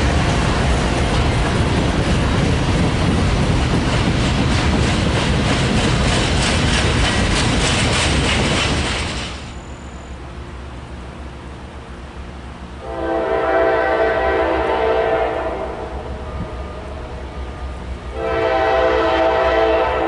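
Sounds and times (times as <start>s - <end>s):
wheels clicking over rail joints: 0.0s - 9.6s
train wheels rumbling on track: 0.0s - 20.0s.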